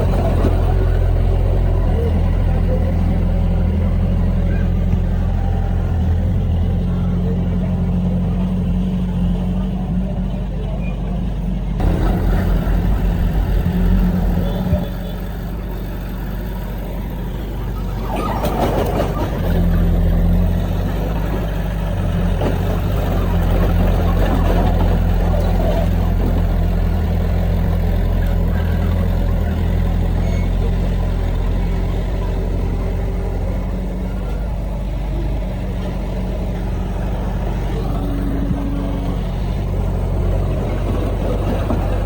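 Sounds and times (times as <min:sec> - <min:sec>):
heavy machinery diesel engine: 0:00.0 - 0:42.0
rattling noise: 0:11.8 - 0:30.0.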